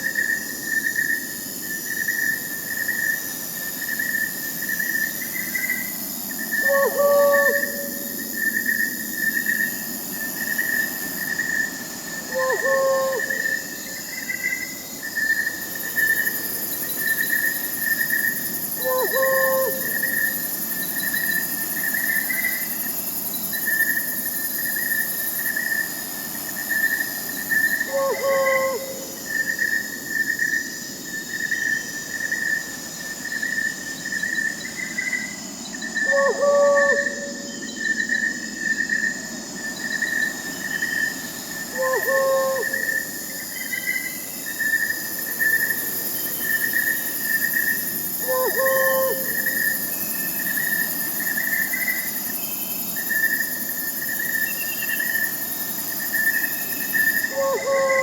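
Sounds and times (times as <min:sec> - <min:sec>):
crickets chirping: 0:00.0 - 0:58.0
night insects hissing: 0:00.0 - 0:58.0
owl hooting: 0:06.6 - 0:08.2, 0:12.3 - 0:13.7, 0:18.8 - 0:20.4, 0:27.8 - 0:29.2, 0:36.0 - 0:37.6, 0:41.7 - 0:43.1, 0:48.2 - 0:49.8, 0:57.3 - 0:58.0.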